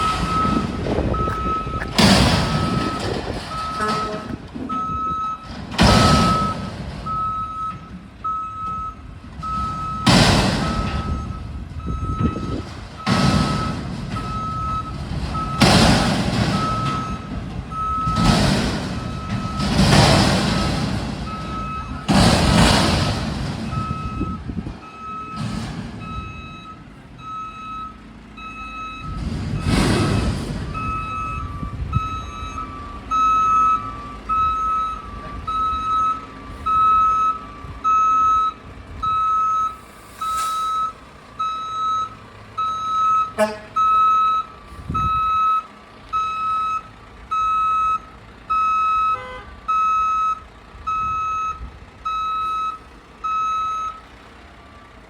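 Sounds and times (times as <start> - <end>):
reverse alarm beeping: 0.0 - 1.9, 2.5 - 15.7, 30.8 - 54.0
diesel engine running: 0.0 - 55.0.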